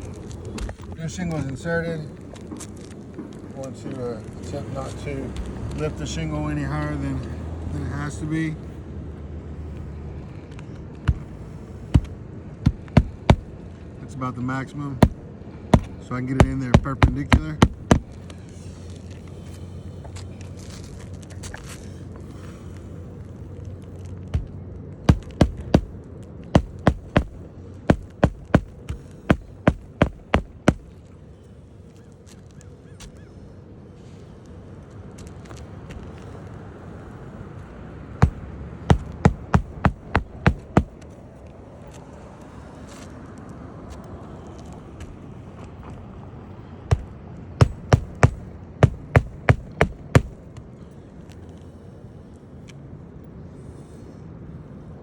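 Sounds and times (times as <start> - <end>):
hammer striking nails: 11.1 - 11.3, 11.9 - 13.5, 15.0 - 15.2, 15.8 - 18.2, 25.1 - 25.9, 26.5 - 30.9, 38.2 - 41.0, 46.9 - 50.4.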